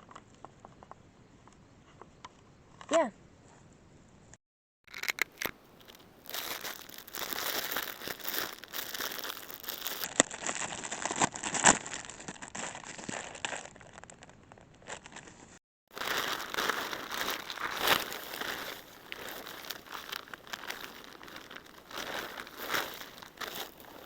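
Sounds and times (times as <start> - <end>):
fast crinkling and rustling: 4.9 - 24.0.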